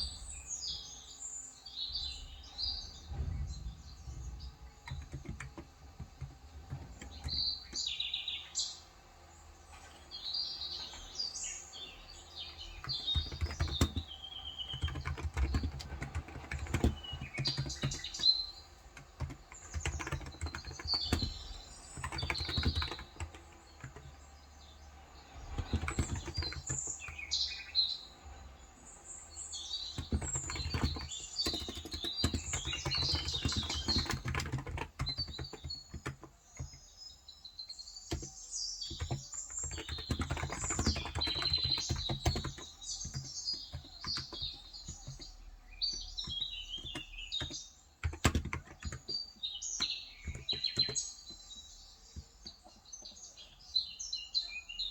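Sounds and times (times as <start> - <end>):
birds chirping: 0.0 - 54.9
keyboard typing clicks: 4.8 - 8.0, 12.8 - 18.3, 18.9 - 24.2, 25.5 - 27.6, 29.9 - 36.8, 38.1 - 45.3, 45.9 - 52.7.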